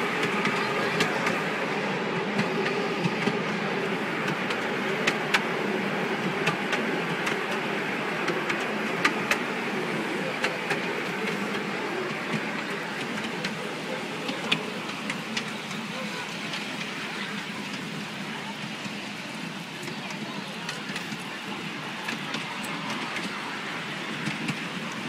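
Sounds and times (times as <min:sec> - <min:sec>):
miniature train rolling rumble: 0:00.0 - 0:25.0
sharp track clicks: 0:02.2 - 0:09.7.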